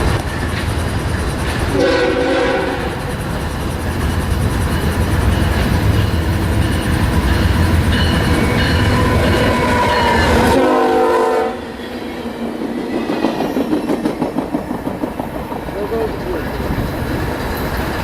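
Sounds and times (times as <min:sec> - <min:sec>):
locomotive rumble: 0:00.0 - 0:18.0
rail cars clacking over joints: 0:00.0 - 0:18.0
train horn chord: 0:01.8 - 0:03.0, 0:08.9 - 0:11.7.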